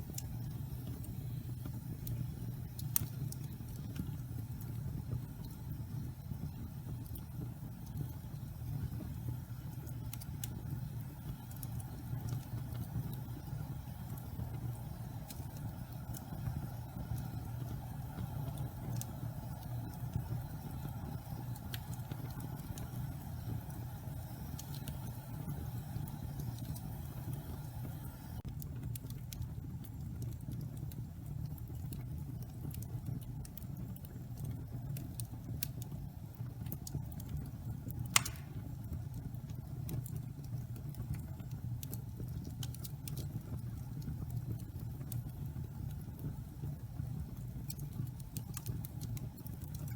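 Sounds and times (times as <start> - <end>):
fire crackling: 0.0 - 49.9
fire flames rumbling: 0.0 - 49.9
fire sharp pop: 38.1 - 38.8.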